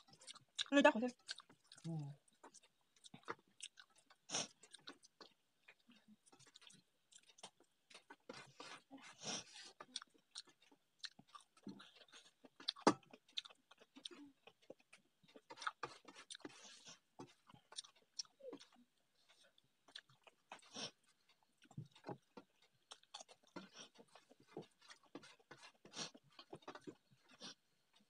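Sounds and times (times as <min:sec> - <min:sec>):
chewing with wet mouth clicks: 0:00.0 - 0:28.0.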